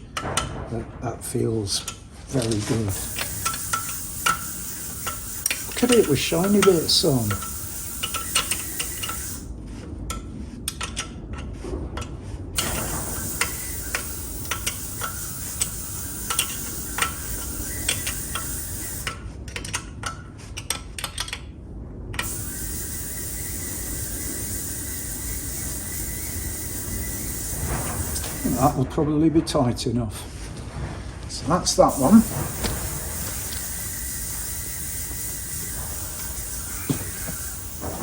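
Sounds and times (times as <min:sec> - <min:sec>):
steady background hiss: 0:00.0 - 0:09.8, 0:12.6 - 0:19.8, 0:22.1 - 0:38.0
spanner clicking on metal: 0:01.8 - 0:09.5, 0:12.6 - 0:21.4.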